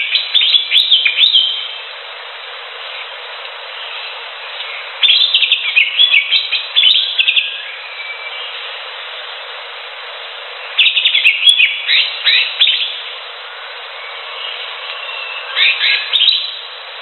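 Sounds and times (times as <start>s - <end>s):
bird singing: 0.0s - 1.8s, 2.8s - 8.8s, 10.6s - 13.2s, 13.9s - 16.7s
background hiss: 0.0s - 17.0s.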